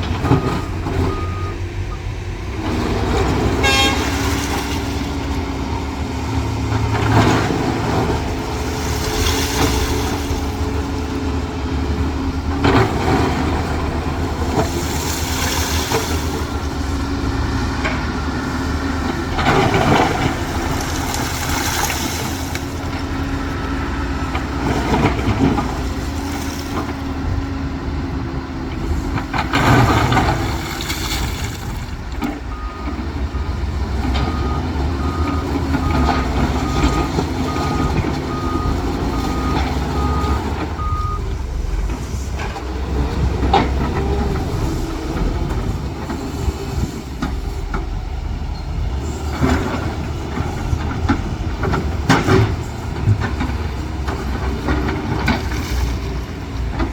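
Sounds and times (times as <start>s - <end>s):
heavy diesel machinery running: 0.0s - 56.9s
reversing alarm beeping: 0.2s - 2.1s, 32.5s - 41.4s.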